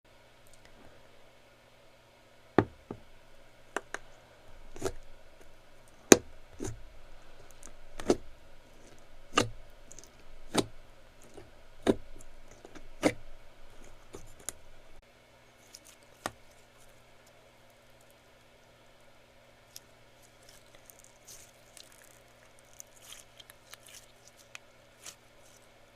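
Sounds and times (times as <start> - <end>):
faint slime crackles: 4.7 - 18.2, 19.6 - 25.8.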